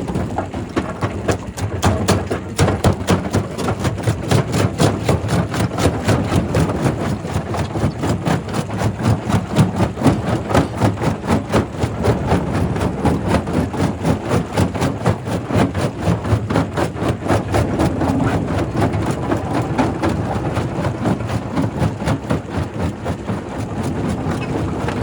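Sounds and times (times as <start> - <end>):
rock crusher rumbling and clattering: 0.0 - 25.0.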